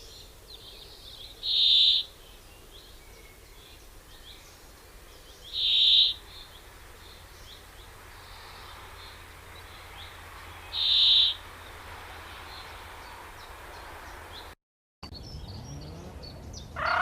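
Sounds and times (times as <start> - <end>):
faint bird chirps: 0.0 - 11.4
harsh high bird calls: 1.3 - 2.7, 5.4 - 11.7, 16.6 - 17.0.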